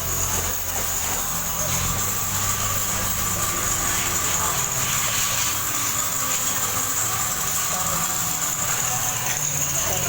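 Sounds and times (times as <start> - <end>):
pressure washer spraying water: 0.0 - 10.0.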